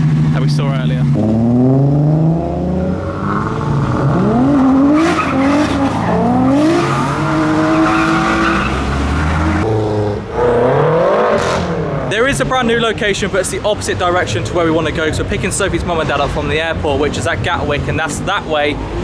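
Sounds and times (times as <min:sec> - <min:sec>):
car engine revving: 0:00.0 - 0:19.0
tyres squealing: 0:03.6 - 0:09.6.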